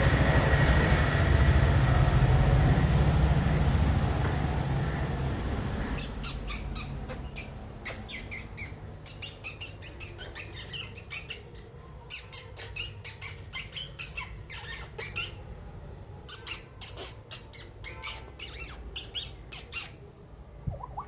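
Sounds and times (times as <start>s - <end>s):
cockatiel chirping: 6.0s - 15.4s, 16.3s - 20.0s.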